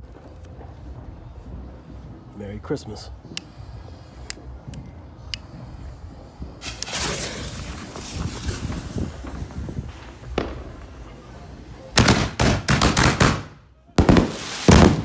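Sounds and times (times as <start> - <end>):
crackling hiss: 3.2 - 12.1, 14.0 - 15.0
firework shells bursting: 5.2 - 15.0
sharp firework bangs: 6.4 - 15.0.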